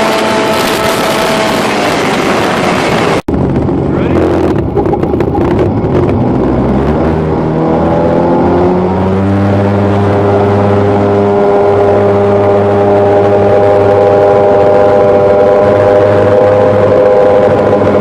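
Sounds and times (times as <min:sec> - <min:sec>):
rushing water: 0:00.0 - 0:03.2
jet boat engine accelerating: 0:00.0 - 0:18.0
wind: 0:00.0 - 0:18.0.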